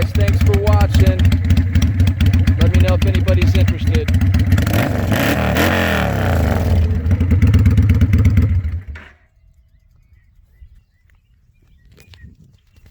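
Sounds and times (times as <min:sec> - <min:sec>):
motorcycle engine running: 0:00.0 - 0:10.3.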